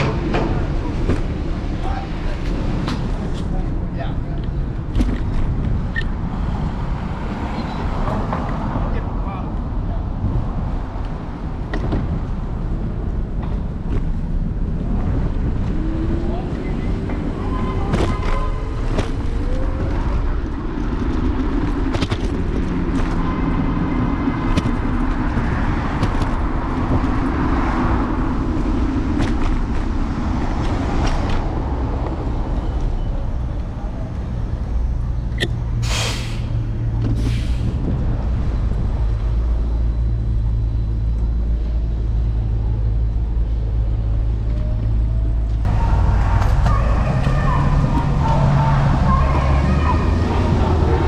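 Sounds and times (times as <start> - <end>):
street traffic: 0.0 - 51.0.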